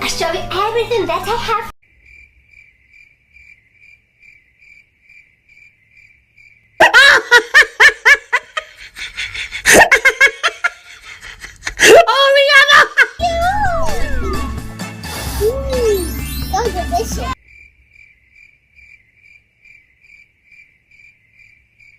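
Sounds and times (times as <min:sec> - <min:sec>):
loud laughter: 0:06.8 - 0:13.8.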